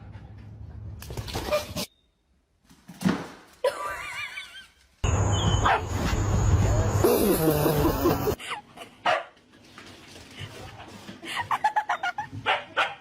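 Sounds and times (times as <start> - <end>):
dog barking and yipping: 5.5 - 6.0, 12.4 - 13.0.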